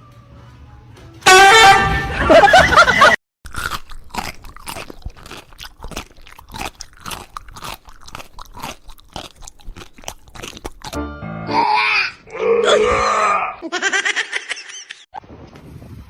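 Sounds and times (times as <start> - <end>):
animal chewing crunchy food: 3.5 - 11.0.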